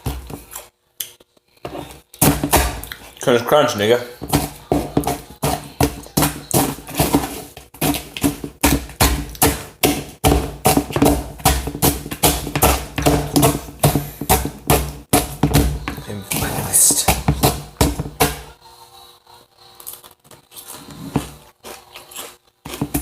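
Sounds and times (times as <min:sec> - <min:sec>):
cereal being chewed with loud crunches: 0:19.7 - 0:23.0.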